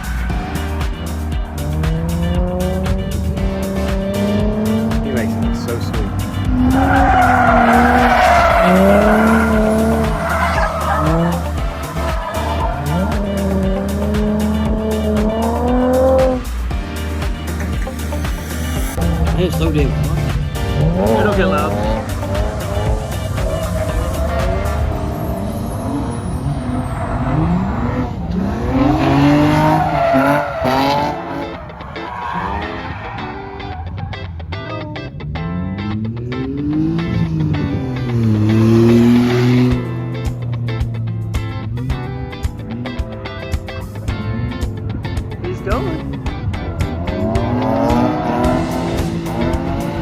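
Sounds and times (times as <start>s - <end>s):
background music with steady beat: 0.0s - 26.5s, 28.3s - 34.9s, 35.8s - 50.0s
car engine revving: 0.0s - 50.0s
tyres squealing: 3.6s - 16.4s, 19.9s - 34.3s.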